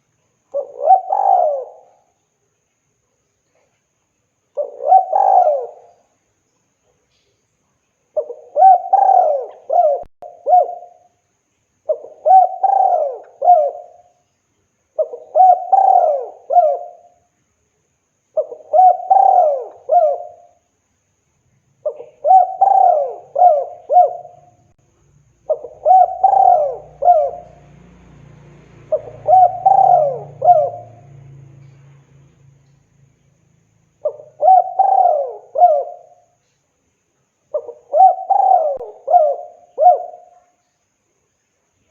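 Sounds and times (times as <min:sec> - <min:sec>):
dove cooing: 0:00.5 - 0:02.1, 0:04.6 - 0:06.0, 0:08.2 - 0:11.1, 0:11.9 - 0:14.1, 0:15.0 - 0:17.2, 0:18.4 - 0:20.6, 0:21.8 - 0:24.7, 0:25.4 - 0:28.2, 0:28.8 - 0:31.8, 0:34.0 - 0:36.4, 0:37.5 - 0:40.5.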